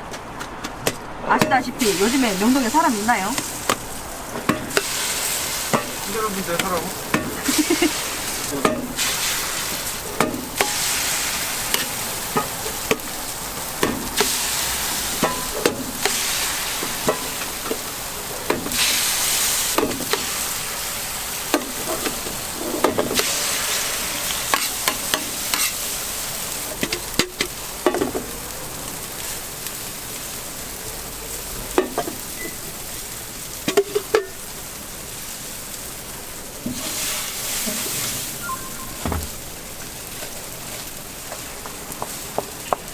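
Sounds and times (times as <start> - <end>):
food sizzling on a griddle: 1.4 - 42.9.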